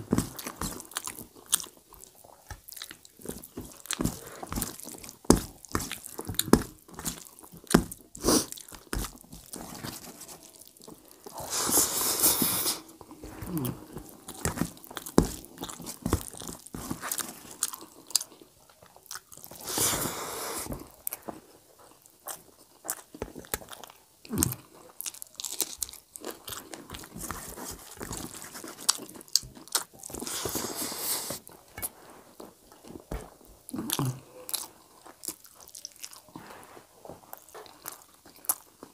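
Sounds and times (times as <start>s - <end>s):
person chewing with wet mouth clicks: 0.2s - 9.6s, 12.2s - 19.8s, 28.1s - 30.4s.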